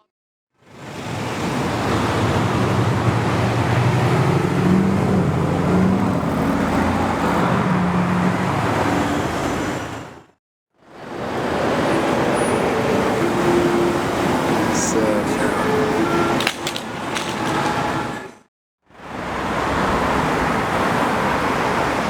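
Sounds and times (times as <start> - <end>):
wind and road noise: 0.6 - 22.0
car engine running: 1.5 - 9.8.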